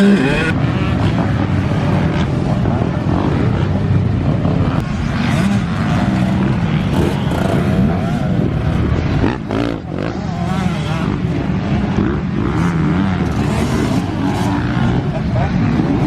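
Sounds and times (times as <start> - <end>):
motocross bike engine revving: 0.0 - 16.0.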